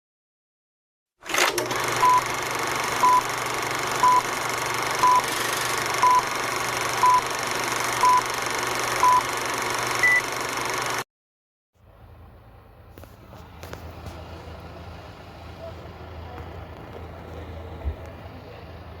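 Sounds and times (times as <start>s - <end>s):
electronic countdown beeps: 3.0s - 3.3s, 4.0s - 4.3s, 5.0s - 5.3s, 6.0s - 6.3s, 7.0s - 7.3s, 8.0s - 8.3s, 9.0s - 9.3s, 10.0s - 10.3s.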